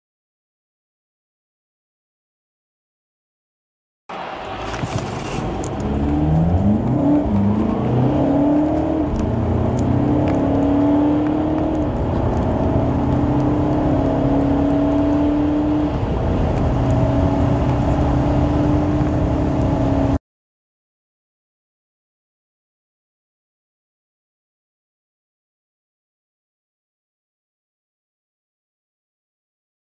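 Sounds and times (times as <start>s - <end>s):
car engine accelerating through gears: 4.1s - 20.2s.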